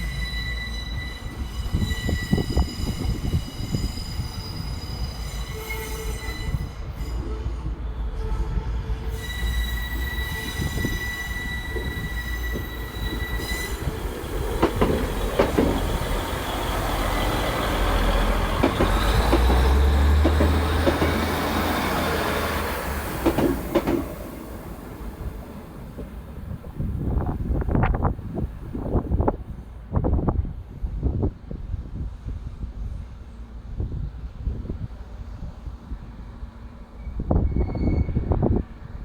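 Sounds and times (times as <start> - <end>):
train wheel squeal: 0.0 - 26.0, 36.6 - 39.0
train rumble: 0.0 - 39.0
wheels knocking over rail joints: 14.5 - 16.2.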